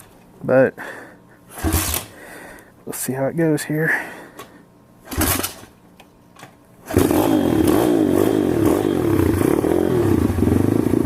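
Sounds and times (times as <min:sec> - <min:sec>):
motorcycle engine starting and revving: 0:01.5 - 0:02.2, 0:05.0 - 0:05.8, 0:06.8 - 0:11.0.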